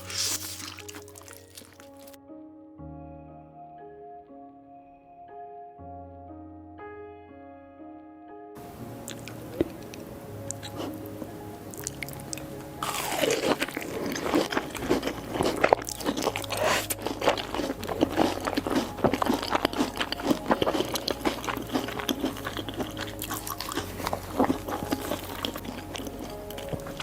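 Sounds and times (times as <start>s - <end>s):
crunchy biting and chewing: 0.0s - 2.2s, 10.5s - 11.0s, 11.7s - 27.0s.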